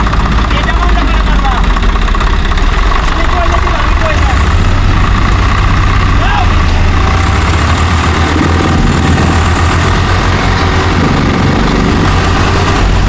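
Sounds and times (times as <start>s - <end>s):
heavy diesel engine rumbling: 0.0s - 13.0s.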